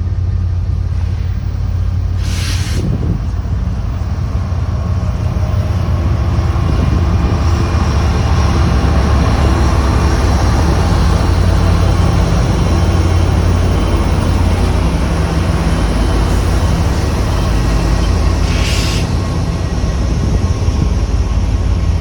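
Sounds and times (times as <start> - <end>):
diesel locomotive engine droning: 0.0 - 22.0
short hiss: 2.2 - 2.9, 18.5 - 19.1.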